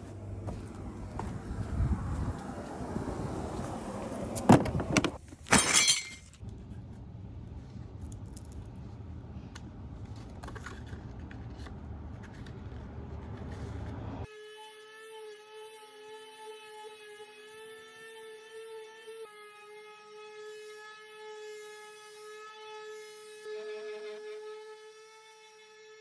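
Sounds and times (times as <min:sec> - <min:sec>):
low steady rumble: 0:00.0 - 0:05.2.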